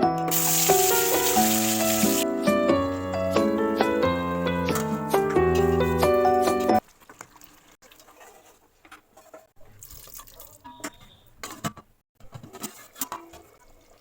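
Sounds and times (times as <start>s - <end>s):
background piano music: 0.0s - 6.8s
running water: 0.3s - 2.2s.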